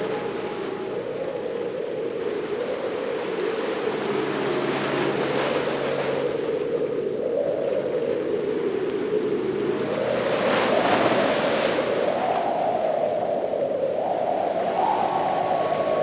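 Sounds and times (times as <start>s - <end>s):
ocean waves on a beach: 0.0s - 12.7s.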